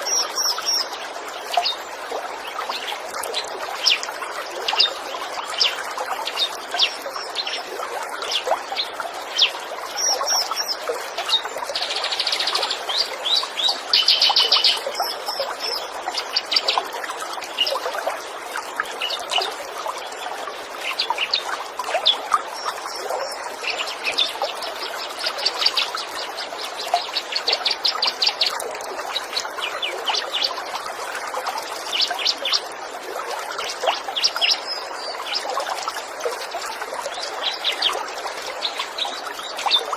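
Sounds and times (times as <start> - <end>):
water trickling: 0.0 - 39.9
songbirds chirping and trilling: 2.4 - 17.9.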